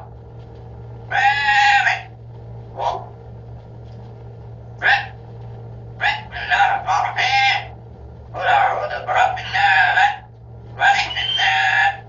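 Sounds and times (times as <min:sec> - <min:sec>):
parrot making voice-like calls: 0:01.1 - 0:02.2, 0:04.8 - 0:05.2, 0:06.0 - 0:07.8, 0:08.4 - 0:12.0.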